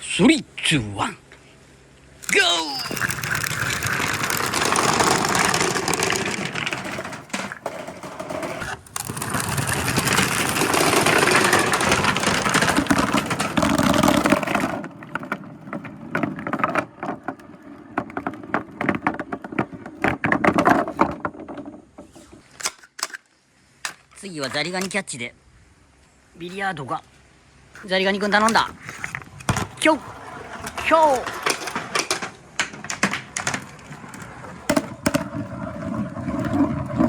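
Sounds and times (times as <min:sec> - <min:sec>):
marbles rolling down a track: 0:02.7 - 0:19.7, 0:29.0 - 0:37.0.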